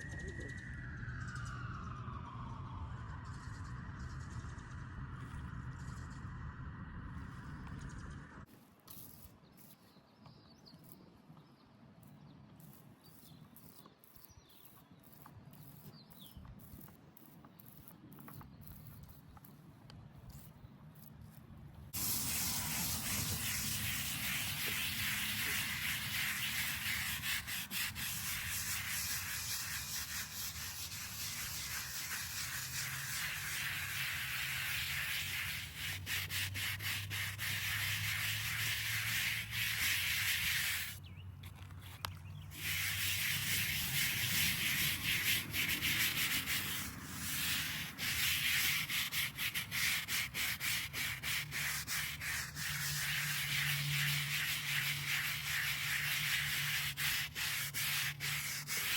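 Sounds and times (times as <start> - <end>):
abrasive rubbing on stone: 22.0 - 58.9.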